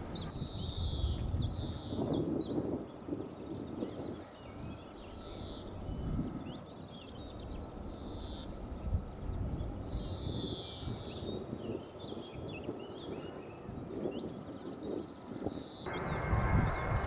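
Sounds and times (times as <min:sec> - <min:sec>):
low outdoor rumble: 0:15.9 - 0:17.0.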